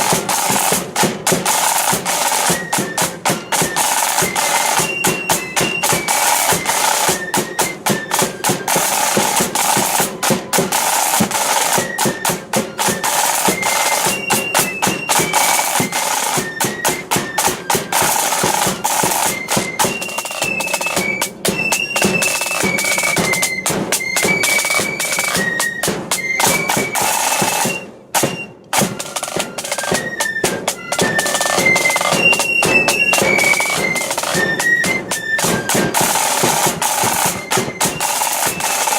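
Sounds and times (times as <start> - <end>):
flutes playing a march: 0.0 - 38.9
snare drum rolls: 0.0 - 38.9.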